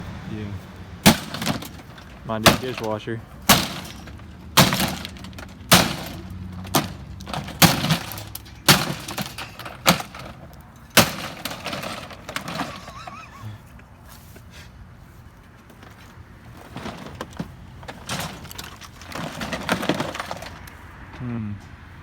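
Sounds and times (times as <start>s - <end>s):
breaking and cracking: 1.0s - 13.0s.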